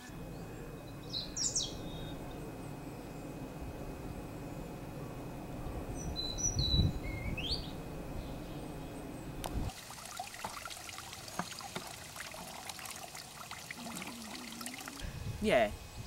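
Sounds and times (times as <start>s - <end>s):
bird chirping: 0.3s - 3.3s, 6.0s - 9.4s
fine crackling trickle noise: 9.7s - 15.0s.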